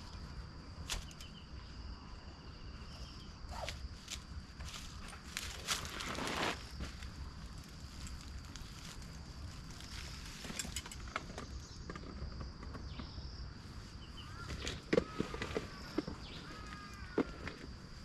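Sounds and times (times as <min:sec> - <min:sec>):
footsteps on forest floor: 0:04.0 - 0:10.4.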